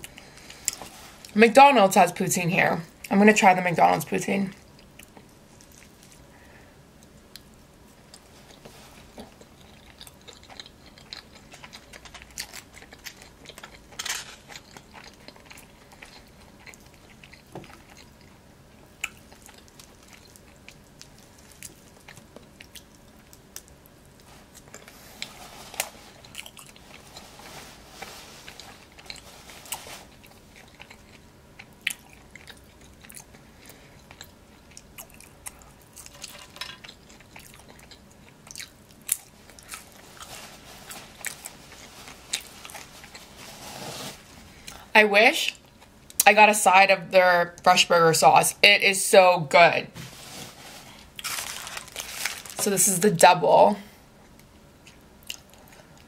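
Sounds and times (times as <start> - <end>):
person chewing: 7.0 - 44.9, 50.8 - 52.6, 54.2 - 56.0.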